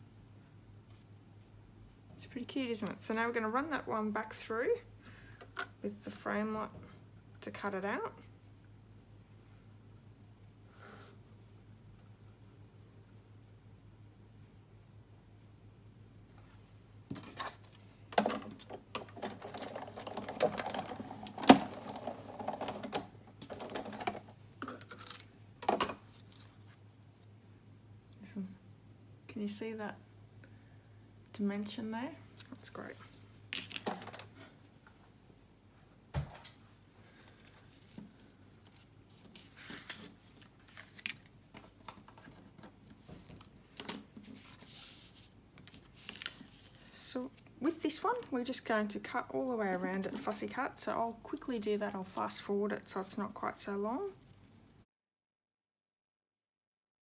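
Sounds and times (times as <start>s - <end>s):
plastic plates clicking and clattering: 18.2s - 26.0s
paper rustling: 26.1s - 27.3s, 37.3s - 42.4s, 44.2s - 47.0s.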